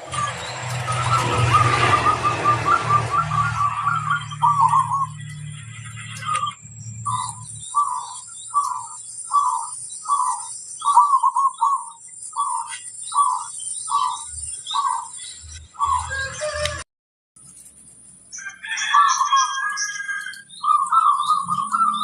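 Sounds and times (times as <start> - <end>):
dove cooing: 0.0 - 15.0, 20.6 - 22.0.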